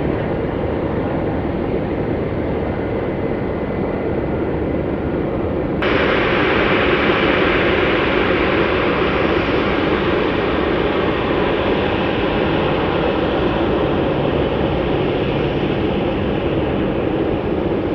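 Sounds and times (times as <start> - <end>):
jet engines rushing: 5.8 - 17.9.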